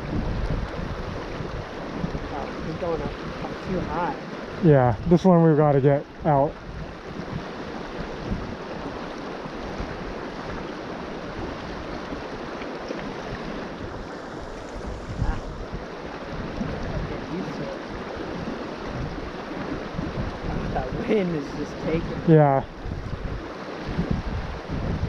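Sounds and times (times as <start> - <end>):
river water rushing: 0.0 - 25.0
wind buffeting microphone: 0.0 - 25.0.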